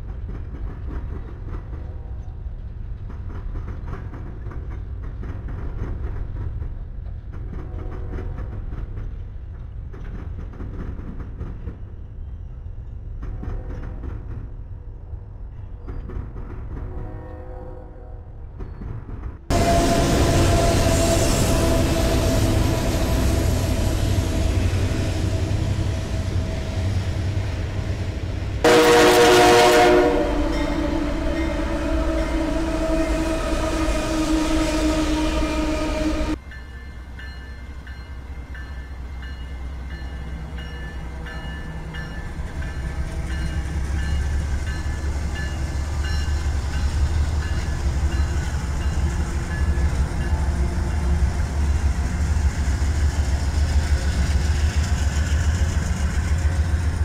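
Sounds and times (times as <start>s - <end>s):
diesel locomotives rumbling past: 0.0s - 57.0s
freight train rolling by: 0.0s - 57.0s
locomotive air horn: 19.5s - 27.0s, 28.6s - 36.4s.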